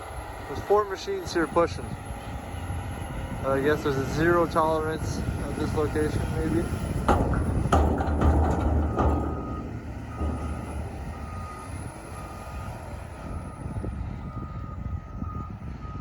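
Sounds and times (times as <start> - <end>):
diesel engines running: 0.0 - 16.0
clunks: 6.9 - 13.4
backup alarm beeping: 8.5 - 16.0.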